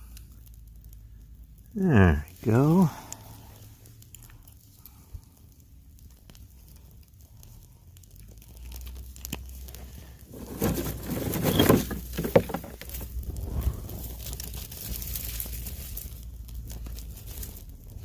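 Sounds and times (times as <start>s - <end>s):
kindling clicks and crackles: 0.0s - 18.0s
kindling rustling and crinkling: 8.2s - 18.0s.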